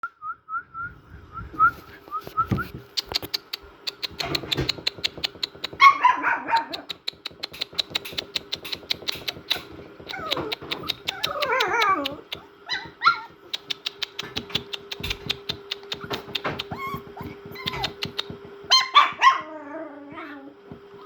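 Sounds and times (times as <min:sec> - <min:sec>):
puppies squeaking and whining: 0:01.7 - 0:20.6
sharp clicks: 0:02.9 - 0:05.8, 0:06.6 - 0:12.5, 0:13.5 - 0:16.8.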